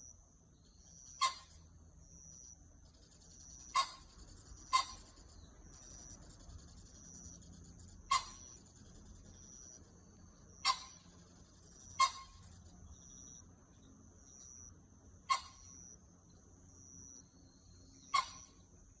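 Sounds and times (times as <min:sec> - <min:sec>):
high insect trill: 0:00.0 - 0:19.0.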